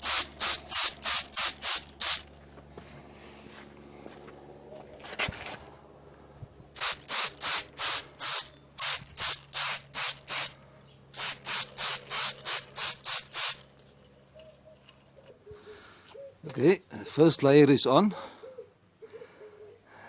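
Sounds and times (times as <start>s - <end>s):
spray paint can hissing: 0.0s - 2.2s, 6.8s - 10.6s, 11.2s - 13.7s.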